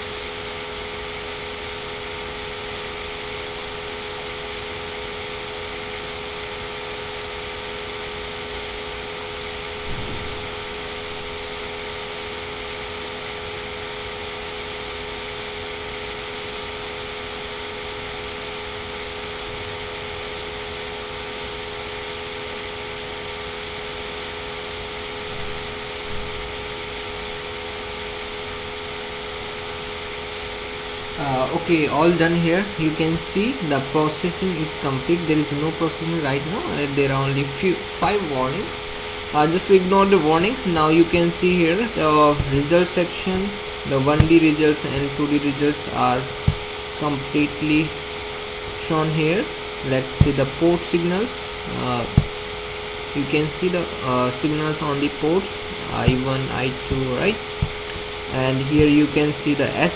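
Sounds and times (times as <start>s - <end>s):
background hum and hiss: 0.0s - 59.9s.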